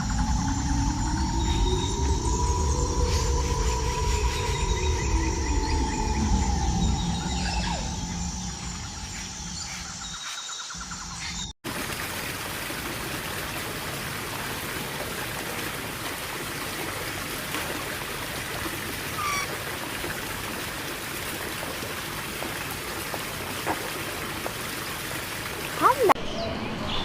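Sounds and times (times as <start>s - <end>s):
flowing stream water: 11.6s - 26.2s
short falling bird call: 19.1s - 19.5s.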